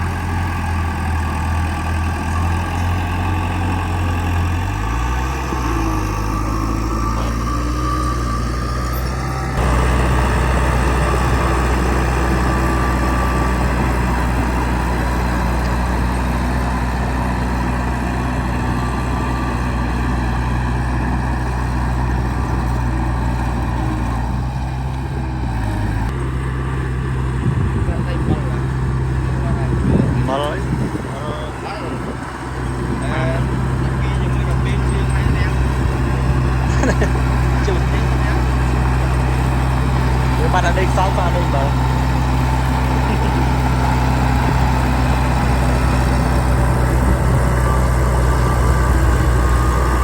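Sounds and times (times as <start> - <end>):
heavy machine engine running: 0.0 - 50.0.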